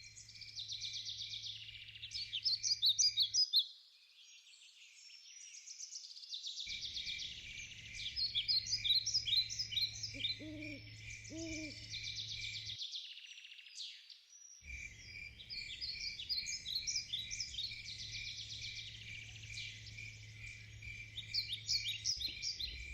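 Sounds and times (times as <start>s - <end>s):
birds singing and chirping: 0.0s - 22.9s
low hooting calls: 9.9s - 12.5s.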